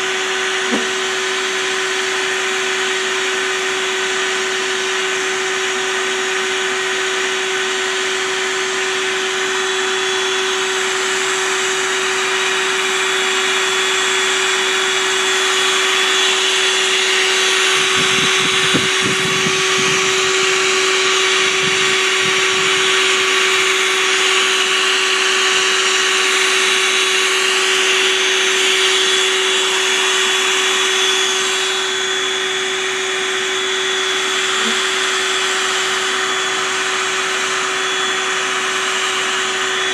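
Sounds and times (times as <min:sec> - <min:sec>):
motor whining: 0:00.0 - 0:02.8, 0:08.8 - 0:39.9.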